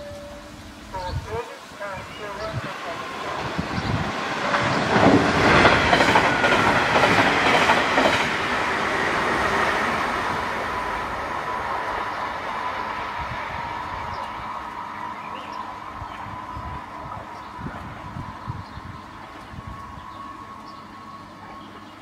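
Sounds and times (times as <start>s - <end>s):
high ringing tone: 0.0s - 0.6s
train wheels knocking on rail joints: 3.4s - 8.6s.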